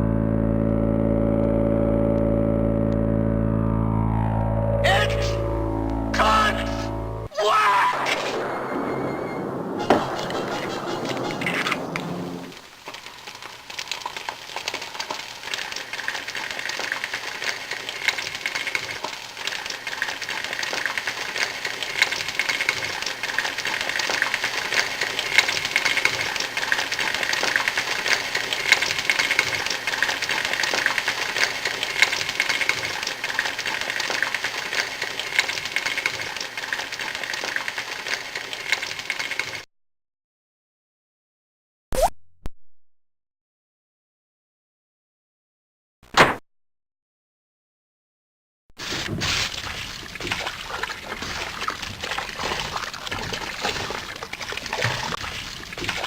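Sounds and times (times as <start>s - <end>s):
rapid clicking and crackling: 9.8s - 39.6s.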